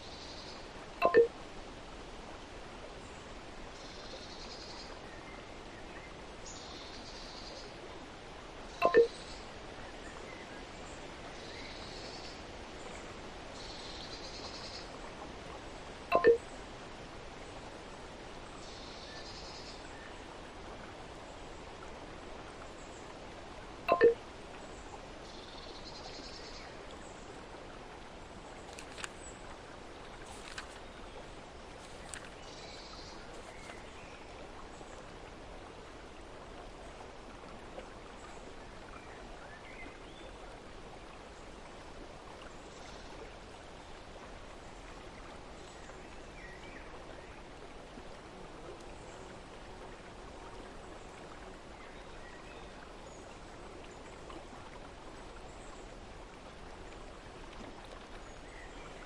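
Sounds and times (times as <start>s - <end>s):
stream trickling: 0.0s - 59.0s
faint high chirps: 1.0s - 1.3s, 8.8s - 9.2s, 16.1s - 16.4s, 23.9s - 24.2s
light clicks: 28.7s - 29.2s.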